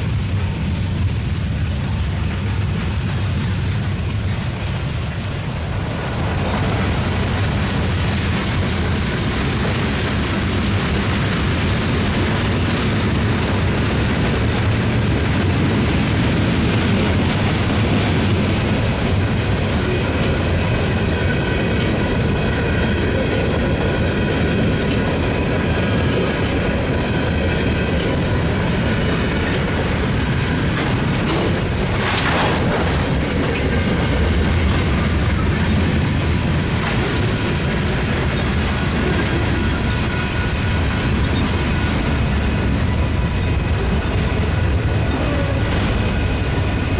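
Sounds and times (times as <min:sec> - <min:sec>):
freight train rumbling past: 0:00.0 - 0:46.9
high whine from train wheels: 0:00.0 - 0:46.9
wheel clatter: 0:28.1 - 0:44.8.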